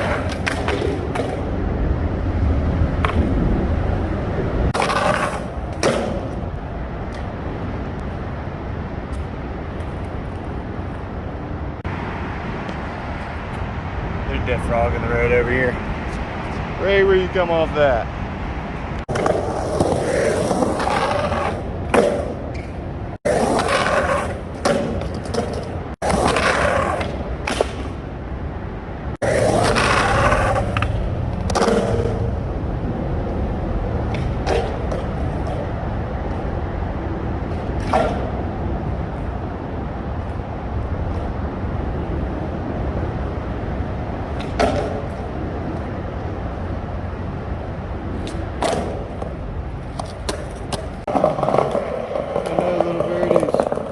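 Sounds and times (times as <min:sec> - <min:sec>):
skateboard trucks grinding on ledge: 0:00.0 - 0:06.5, 0:19.1 - 0:28.0, 0:29.2 - 0:36.0, 0:37.3 - 0:39.0, 0:49.9 - 0:53.9
skateboard wheels rolling on pavement: 0:00.0 - 0:53.9.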